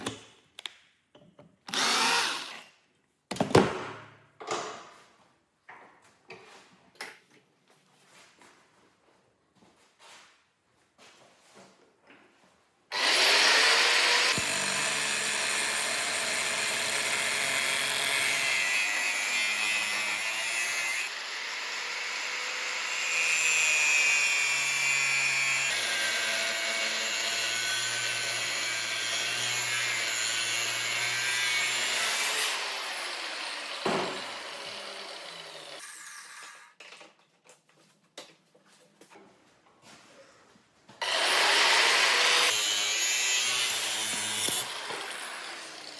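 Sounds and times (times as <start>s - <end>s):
electric power tool running: 13.0s - 18.3s.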